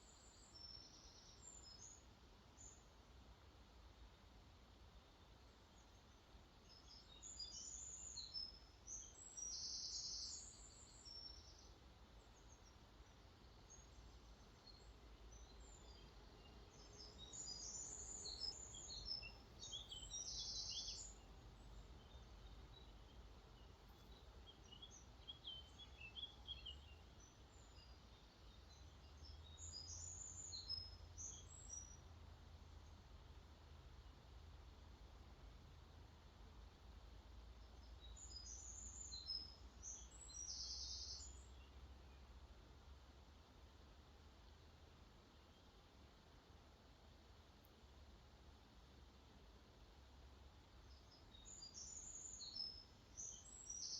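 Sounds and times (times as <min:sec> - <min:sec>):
faint birdsong chirps and trills: 0:00.0 - 0:53.9
low steady rumble: 0:12.2 - 0:29.6.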